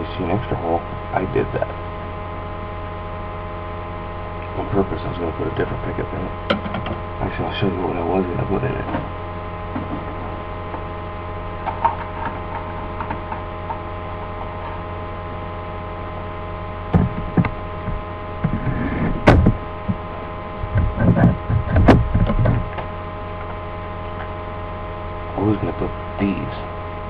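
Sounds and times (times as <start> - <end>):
electrical mains hum: 0.0 - 27.0
objects knocking and rattling: 6.5 - 7.0.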